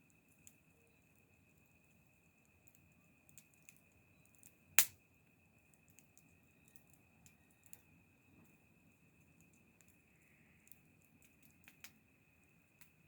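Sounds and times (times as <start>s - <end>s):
wood fire crackling: 0.0s - 13.0s
loud pop from fire: 4.8s - 5.0s.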